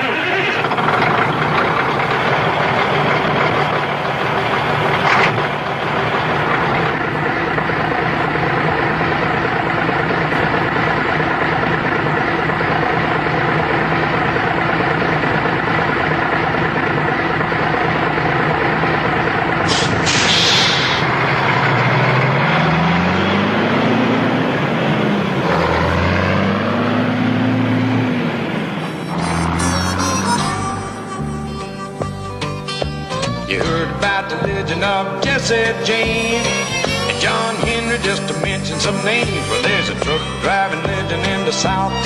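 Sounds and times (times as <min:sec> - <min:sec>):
diesel truck engine idling: 0:00.0 - 0:42.0
short hiss: 0:19.7 - 0:21.1.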